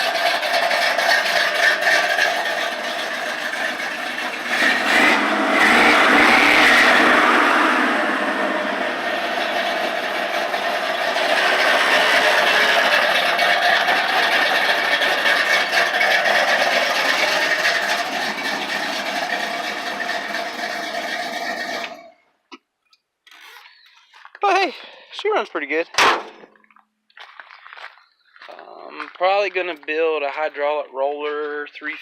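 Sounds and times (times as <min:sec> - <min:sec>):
car engine running: 0:00.0 - 0:22.1.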